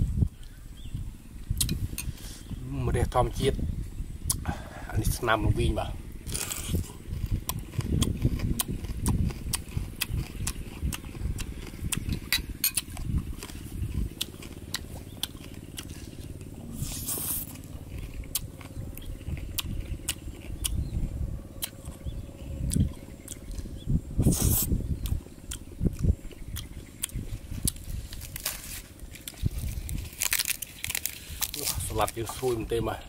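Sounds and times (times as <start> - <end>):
chewing and lip smacking: 6.2 - 32.5.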